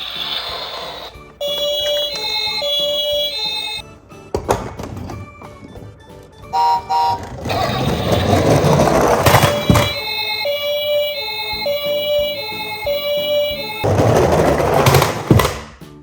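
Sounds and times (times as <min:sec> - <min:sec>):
two-tone ambulance siren: 0:06.5 - 0:08.4, 0:09.4 - 0:13.9.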